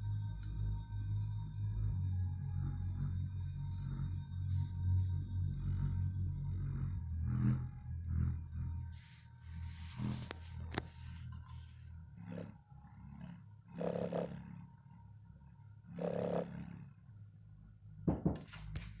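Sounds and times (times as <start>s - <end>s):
subwoofer playing low bass: 0.0s - 11.4s
buzzy bass pulses: 1.4s - 11.5s, 12.1s - 14.6s
sharp knocks: 18.1s - 18.7s.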